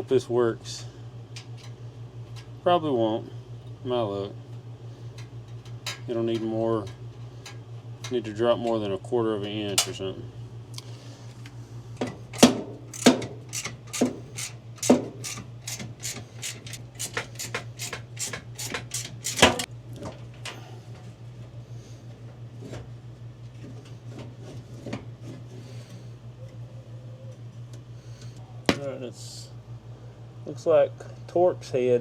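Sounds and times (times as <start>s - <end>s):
steady low hum: 0.0s - 32.0s
hand tools clicking on metal: 12.3s - 19.7s.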